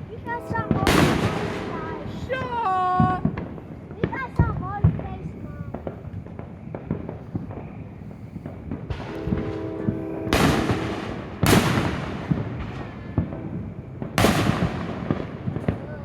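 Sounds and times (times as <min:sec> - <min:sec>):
steady humming tone: 0:00.0 - 0:03.9, 0:09.1 - 0:11.4
fireworks booming: 0:00.0 - 0:16.0
fireworks pops and crackles: 0:00.0 - 0:16.0.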